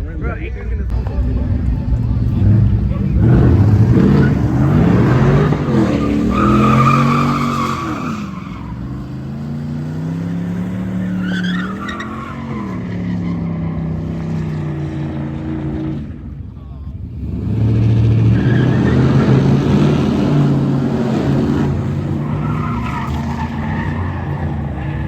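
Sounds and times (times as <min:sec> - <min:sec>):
tires squealing: 0:00.9 - 0:16.3, 0:17.1 - 0:25.0
truck engine revving: 0:00.9 - 0:25.0.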